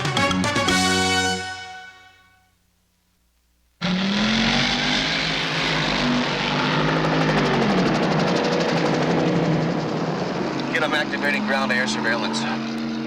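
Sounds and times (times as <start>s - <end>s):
car engine revving: 3.8s - 13.0s
helicopter rotor and engine: 6.3s - 13.0s.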